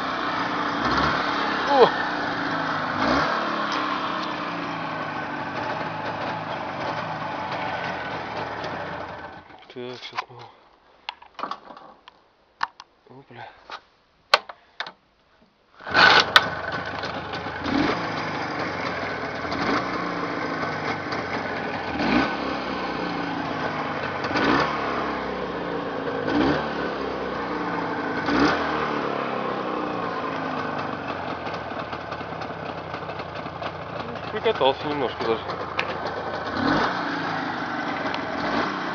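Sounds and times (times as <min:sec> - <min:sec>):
motorcycle engine revving: 0:00.0 - 0:09.5, 0:15.8 - 0:38.9.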